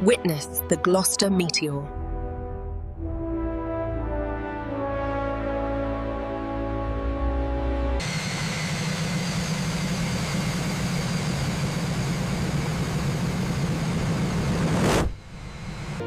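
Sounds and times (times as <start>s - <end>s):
music: 0.0s - 8.0s
jet engine whining: 8.0s - 16.0s.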